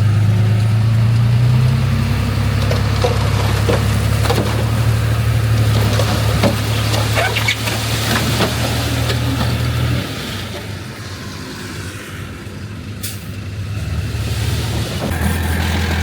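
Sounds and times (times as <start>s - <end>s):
diesel machinery engine running: 0.0s - 16.0s.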